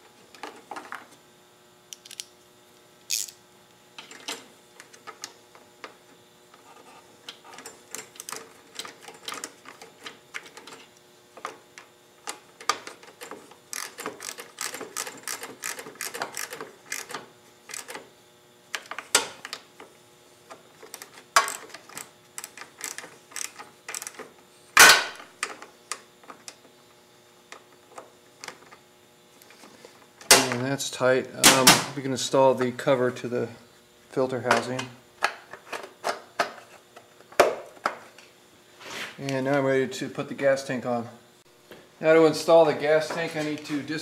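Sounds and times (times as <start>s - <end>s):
socket ratchet clicking: 3.1s - 3.4s, 13.7s - 18.0s.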